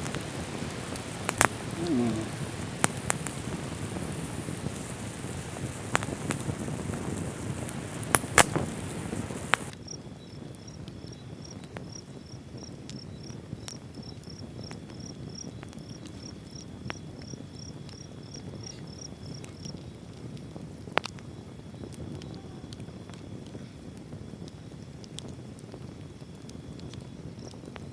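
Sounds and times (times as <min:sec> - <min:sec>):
isolated clicks: 0:00.0 - 0:09.7
sharp pops: 0:00.0 - 0:09.7
insect chirping: 0:00.0 - 0:10.3
steady rain hiss: 0:00.0 - 0:10.6, 0:11.3 - 0:27.9.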